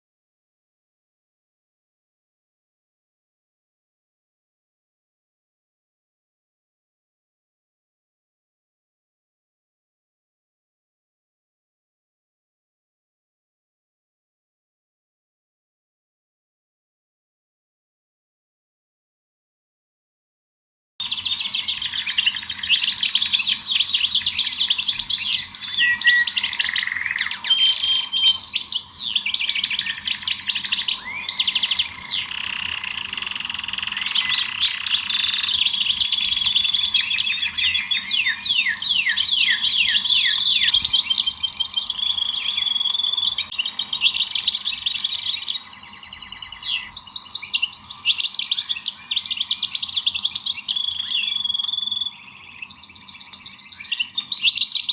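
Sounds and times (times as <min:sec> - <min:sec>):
songbirds chirping and twittering: 0:21.0 - 0:54.9.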